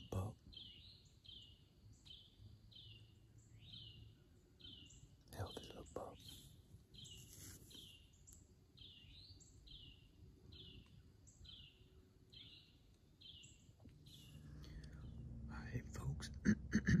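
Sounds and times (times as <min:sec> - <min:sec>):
songbird calling: 0:00.0 - 0:17.0.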